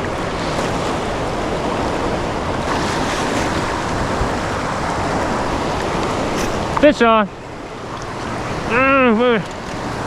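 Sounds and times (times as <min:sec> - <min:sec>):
wind on microphone: 0:00.0 - 0:06.8
turbulent water rushing: 0:00.0 - 0:10.0.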